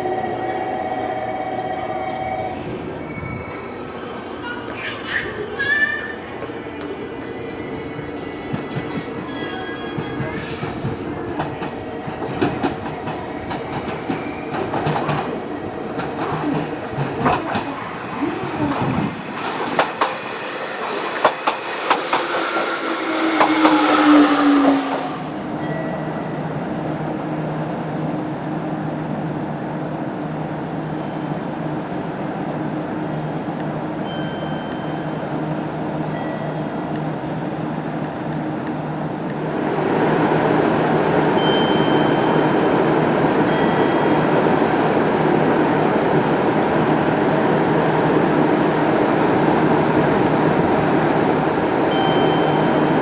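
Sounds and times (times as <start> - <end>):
train inverter whine: 0.0 - 53.0
train running hum: 0.0 - 53.0
train wheels clicking over rail joints: 7.8 - 25.4.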